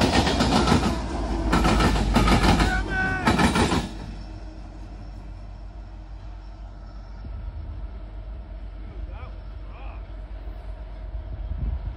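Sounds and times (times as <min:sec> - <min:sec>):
train wheels clattering over crossing: 0:00.0 - 0:04.4
low train rumble: 0:00.0 - 0:11.9.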